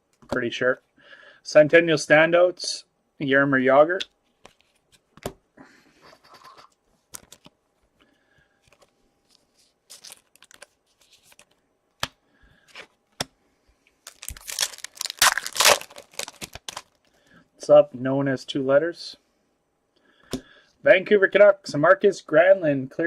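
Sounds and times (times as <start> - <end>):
trading cards clicking and rustling: 6.2 - 7.6, 8.6 - 13.3, 14.1 - 17.0
foil wrapper tearing: 9.9 - 11.4, 14.1 - 17.0.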